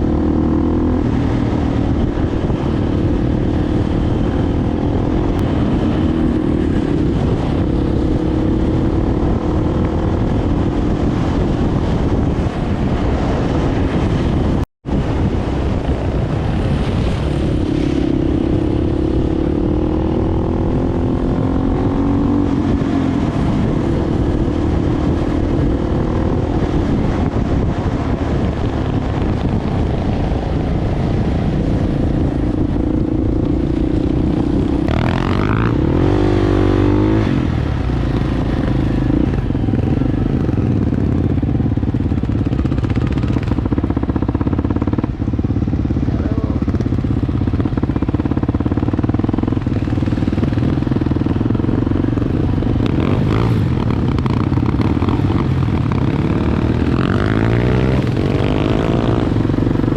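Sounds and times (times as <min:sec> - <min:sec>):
motorbike engine revving: 0:15.1 - 0:59.9.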